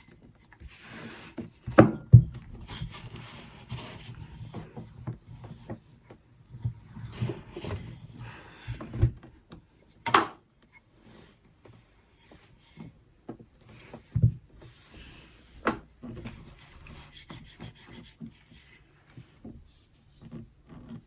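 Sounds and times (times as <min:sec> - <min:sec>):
rolling pin rolling dough: 0:00.6 - 0:09.1.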